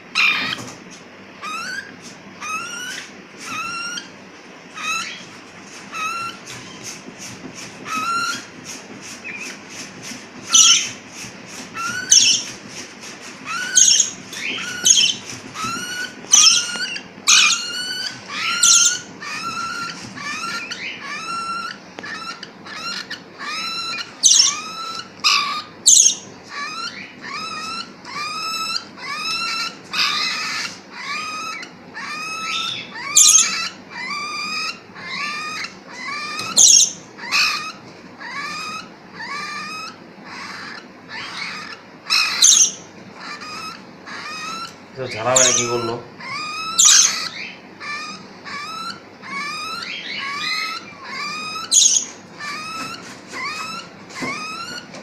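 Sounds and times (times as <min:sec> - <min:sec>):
parrot chicks begging calls: 0:00.0 - 0:55.0.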